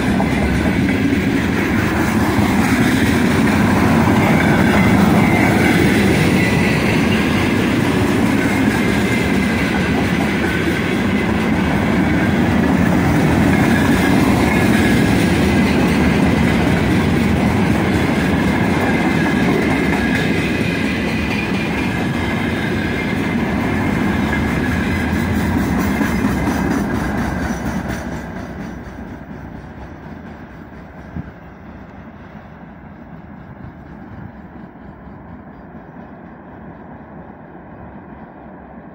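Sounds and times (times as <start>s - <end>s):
freight train wheels on rails: 0.0s - 38.9s.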